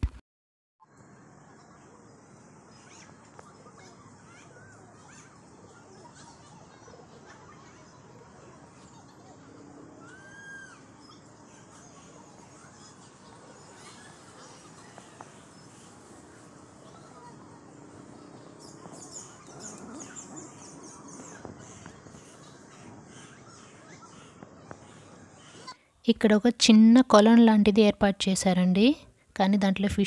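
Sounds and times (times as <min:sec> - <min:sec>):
birds chirping: 0:01.4 - 0:25.9
bird call rising and falling: 0:09.6 - 0:11.4.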